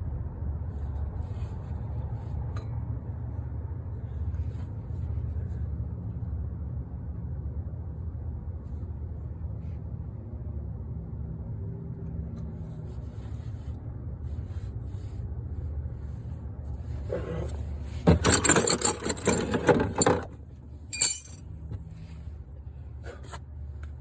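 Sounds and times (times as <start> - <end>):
metal parts clattering: 18.1 - 20.3, 20.9 - 21.5
sharp metal clinks: 21.0 - 21.5.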